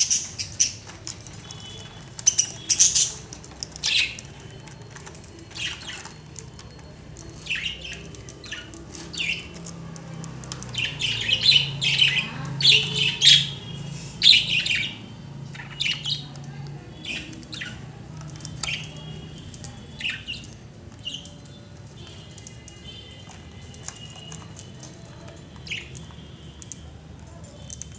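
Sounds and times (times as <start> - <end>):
budgerigars chirping and squawking: 0.0 - 9.7, 10.5 - 21.4.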